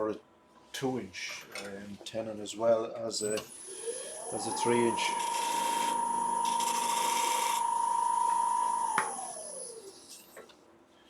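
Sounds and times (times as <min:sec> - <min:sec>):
wood lathe motor whine: 0:03.4 - 0:10.2.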